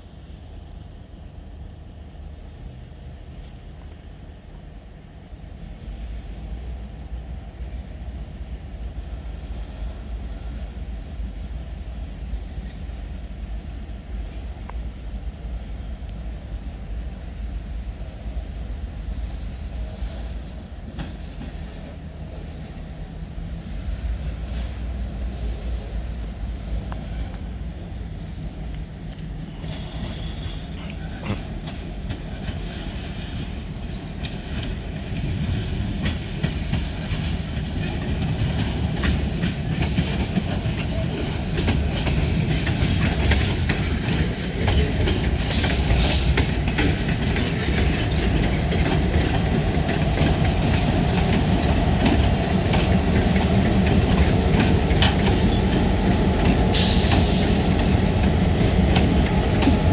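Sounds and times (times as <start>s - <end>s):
freight train engine rumble: 0.0s - 59.9s
train wheels clicking over rail joints: 26.8s - 59.9s.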